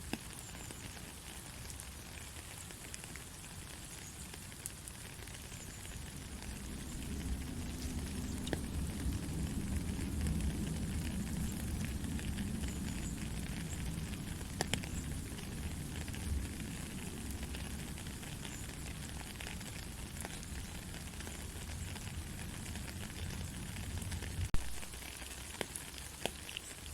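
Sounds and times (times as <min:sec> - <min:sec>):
raindrop ticks: 0:00.0 - 0:26.9
soft rain hiss: 0:00.0 - 0:26.9
low rumble: 0:06.2 - 0:18.2.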